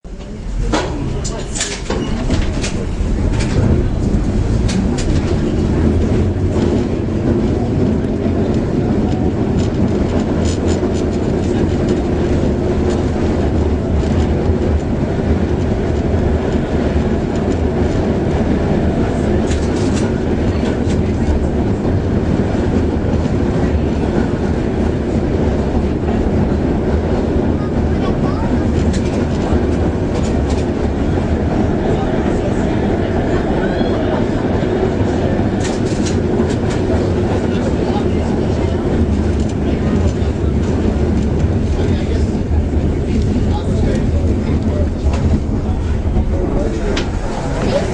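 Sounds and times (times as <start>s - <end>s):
streetcar rumbling on rails: 0.0s - 47.9s.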